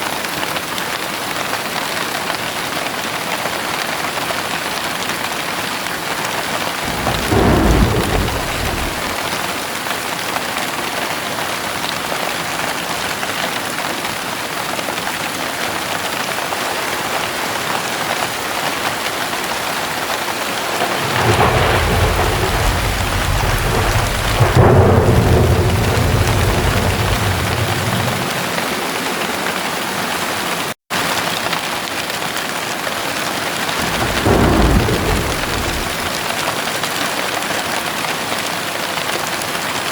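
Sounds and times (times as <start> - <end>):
heavy rain: 0.0 - 39.9
thunder rumbling: 6.6 - 9.9, 17.8 - 30.3, 33.7 - 36.7.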